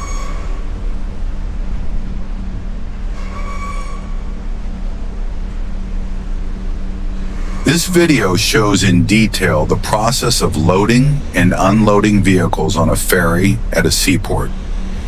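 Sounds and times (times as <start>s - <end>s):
low engine hum: 4.4s - 15.0s.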